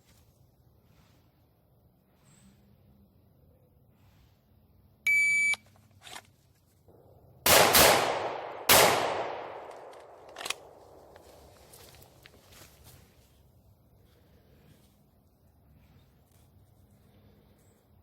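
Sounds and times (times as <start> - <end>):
electronic beep: 5.1 - 5.6
gunshots echoing: 7.4 - 11.1.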